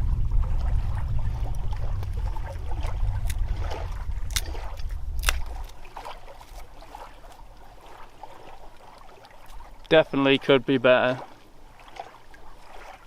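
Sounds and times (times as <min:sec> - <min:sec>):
low rumble: 0:00.0 - 0:07.8.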